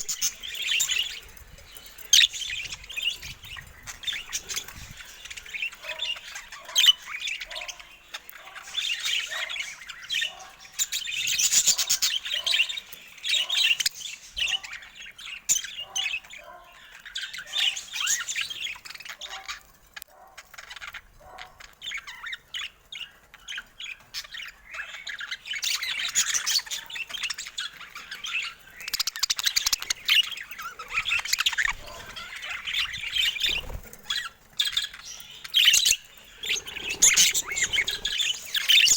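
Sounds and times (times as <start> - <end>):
budgerigars chattering and squawking: 0.0 - 38.9.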